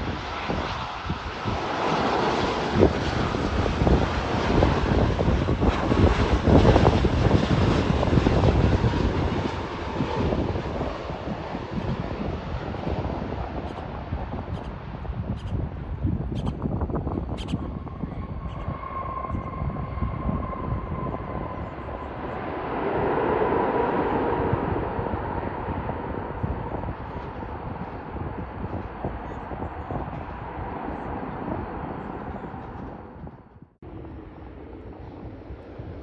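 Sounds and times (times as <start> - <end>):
jet airliner engines passing: 0.0 - 36.0
wind rumbling on microphone: 0.0 - 36.0.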